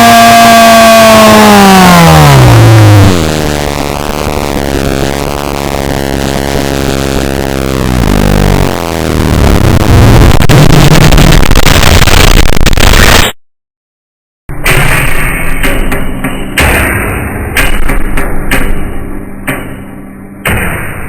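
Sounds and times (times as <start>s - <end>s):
distorted electronic noise: 0.0s - 13.4s.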